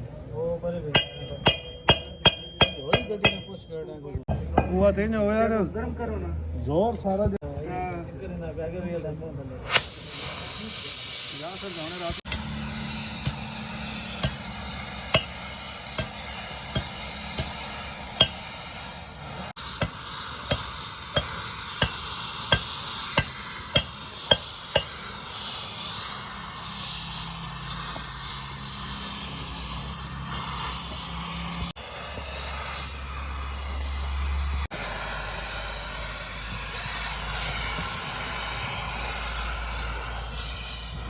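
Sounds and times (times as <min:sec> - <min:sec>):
hammer striking metal: 0:00.9 - 0:05.0, 0:12.3 - 0:25.1.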